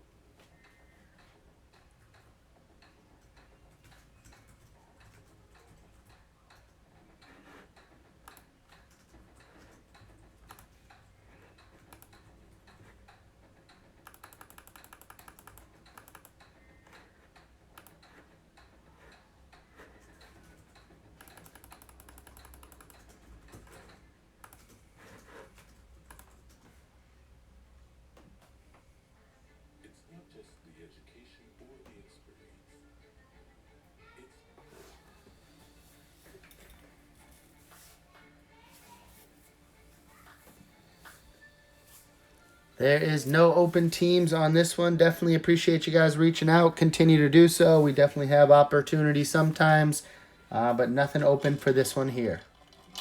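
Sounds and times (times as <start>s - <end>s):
computer keyboard typing: 3.2s - 7.6s, 8.2s - 13.0s, 13.9s - 18.2s, 19.8s - 26.8s.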